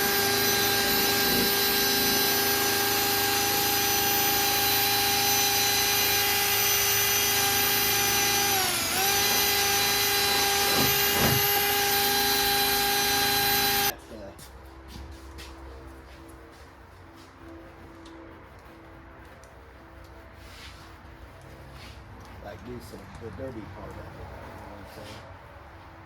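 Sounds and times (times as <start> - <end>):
electric power tool whining: 0.0 - 13.9.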